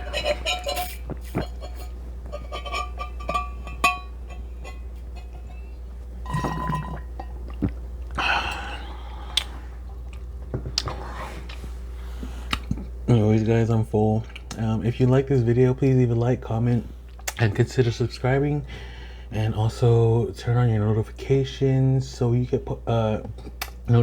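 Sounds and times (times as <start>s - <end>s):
steady low hum: 0.0s - 24.0s
sips and swallows: 0.4s - 2.0s, 6.3s - 13.0s.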